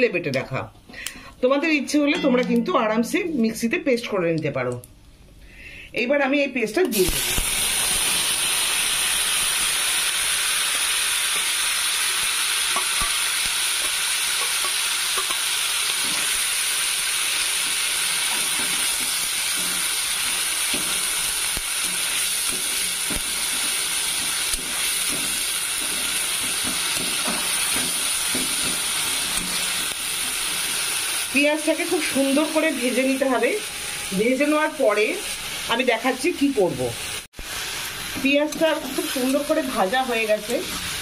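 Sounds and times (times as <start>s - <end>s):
onion paste sizzling in oil: 6.8s - 41.0s
metal spatula scraping: 14.4s - 30.9s, 38.0s - 41.0s.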